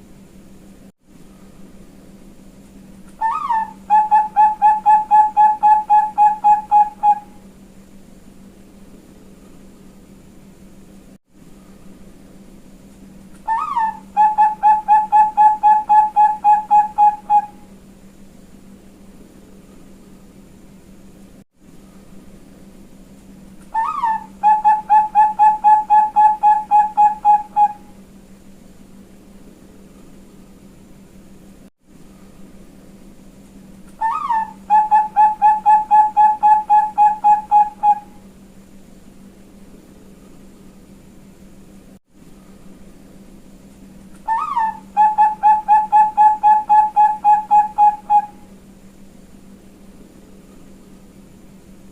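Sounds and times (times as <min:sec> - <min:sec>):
steady low hum: 0:00.0 - 0:51.9
dove cooing: 0:03.2 - 0:07.4, 0:13.5 - 0:17.7, 0:23.7 - 0:27.9, 0:34.0 - 0:38.2, 0:44.2 - 0:48.5.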